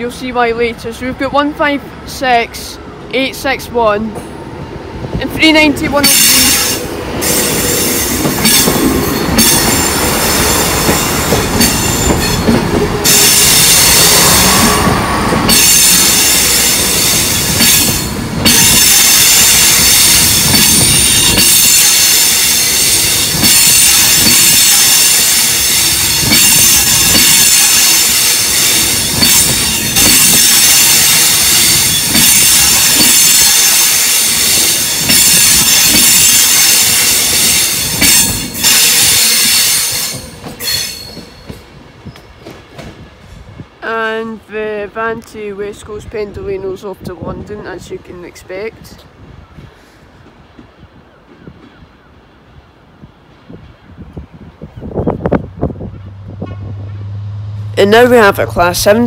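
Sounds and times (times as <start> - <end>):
moving train rumble: 0.0 - 59.0
train wheels squealing on rails: 6.0 - 43.3.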